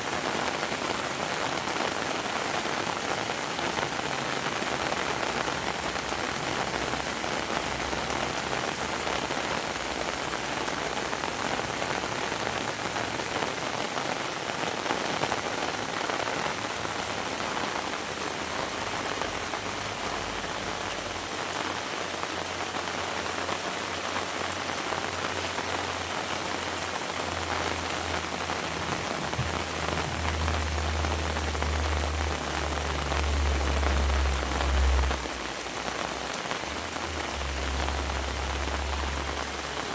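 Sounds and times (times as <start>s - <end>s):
heavy rain falling: 0.0s - 39.9s
low rumble: 28.0s - 35.6s.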